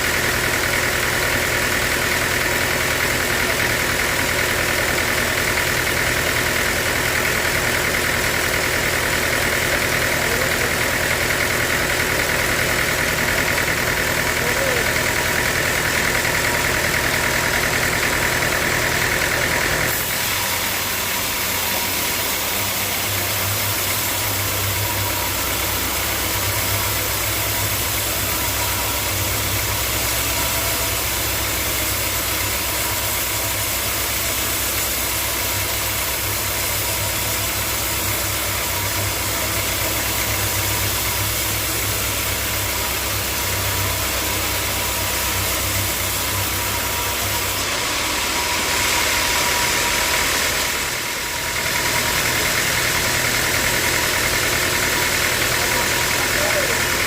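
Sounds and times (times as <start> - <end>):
high machine whine: 0.0 - 57.0
sawmill machinery low hum: 0.0 - 57.0.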